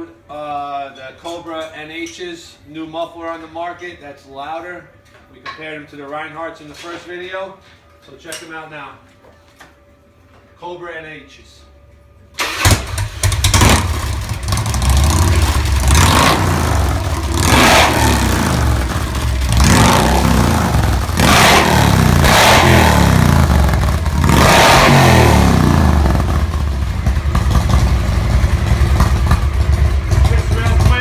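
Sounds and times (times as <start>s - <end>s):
motorcycle engine revving: 12.4s - 31.0s.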